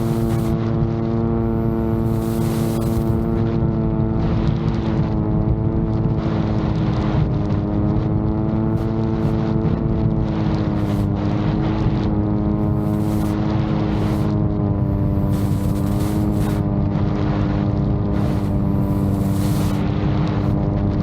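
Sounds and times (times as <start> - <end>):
drone propellers droning: 0.0 - 4.3, 8.2 - 21.0
wind buffeting microphone: 0.0 - 21.0.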